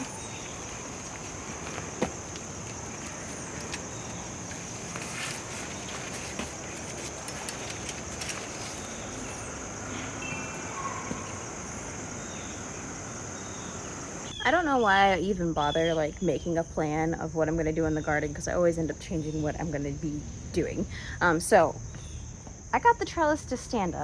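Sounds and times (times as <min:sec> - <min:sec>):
handling clicks and rustles: 0:00.0 - 0:14.3
crickets trilling: 0:00.0 - 0:14.4.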